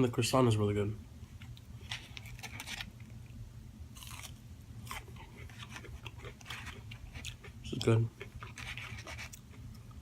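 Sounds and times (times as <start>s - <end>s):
chewing flaky pastry: 3.9s - 10.0s.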